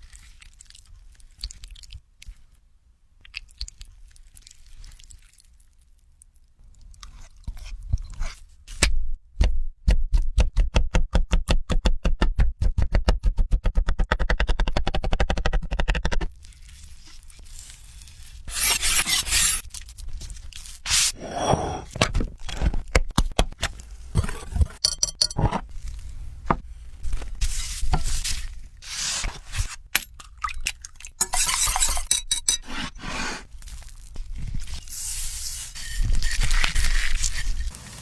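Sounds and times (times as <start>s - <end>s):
utensils scraping cookware: 18.5s - 19.6s, 24.2s - 25.6s, 31.2s - 33.4s, 35.7s - 38.0s.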